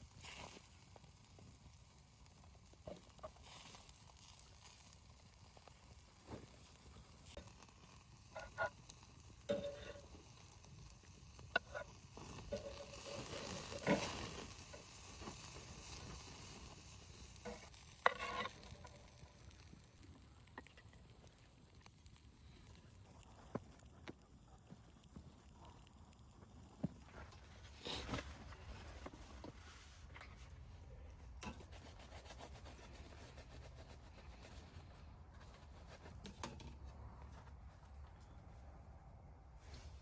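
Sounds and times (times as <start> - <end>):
soft steady hiss: 0.0 - 31.6
cookware clinking and scraping: 9.5 - 10.2, 11.6 - 14.3, 17.5 - 18.9.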